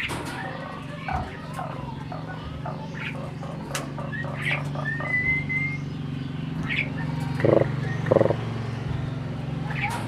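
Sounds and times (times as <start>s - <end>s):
bird chirps and clicks: 3.6s - 5.2s, 6.6s - 8.4s
bird whistle: 4.8s - 5.9s
harsh rasping bird squawk: 6.6s - 8.4s.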